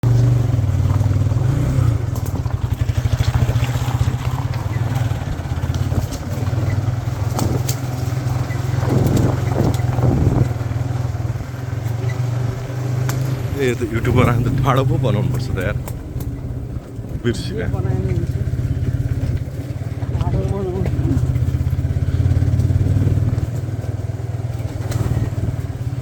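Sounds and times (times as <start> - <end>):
motorcycle engine at low revs: 0.0 - 26.0
motorcycle knocks and rattles: 0.0 - 26.0.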